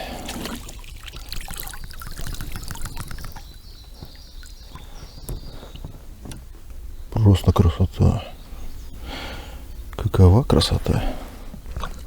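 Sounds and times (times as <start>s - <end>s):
water trickling and splashing: 0.0s - 6.0s, 10.6s - 12.0s.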